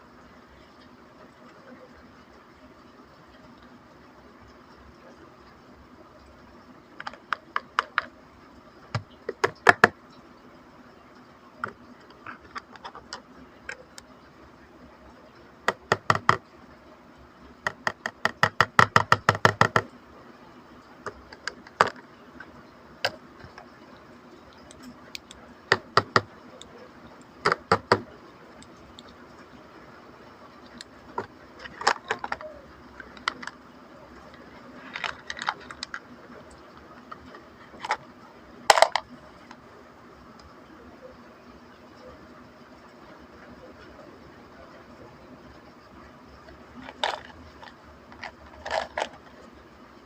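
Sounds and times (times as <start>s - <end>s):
plastic toy pieces clicking: 31.2s - 33.6s, 34.9s - 36.0s, 38.7s - 39.0s, 46.8s - 49.3s
packaging being handled: 34.8s - 36.0s.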